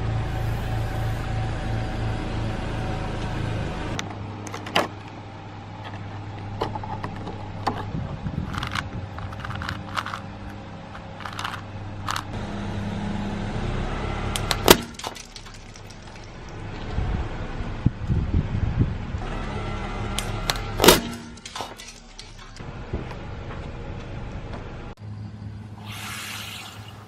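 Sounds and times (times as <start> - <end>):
car engine hum: 0.0 - 26.1
tyre crushing crunchy objects: 20.2 - 22.6.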